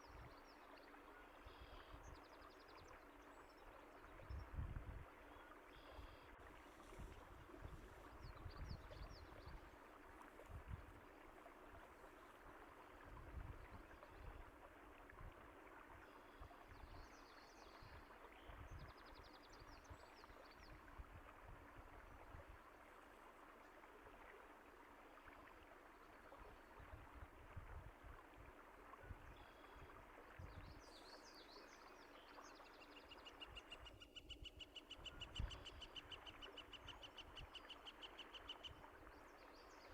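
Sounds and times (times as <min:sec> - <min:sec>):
stream of water running: 0:00.0 - 0:39.9
faint bird chirps: 0:05.3 - 0:06.4, 0:30.6 - 0:39.9.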